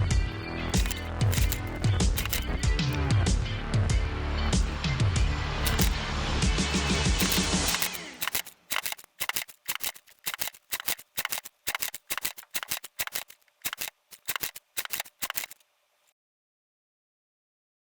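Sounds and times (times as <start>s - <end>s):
sharp clicks and clacks: 0.7s - 3.0s, 5.6s - 6.0s, 6.7s - 15.6s.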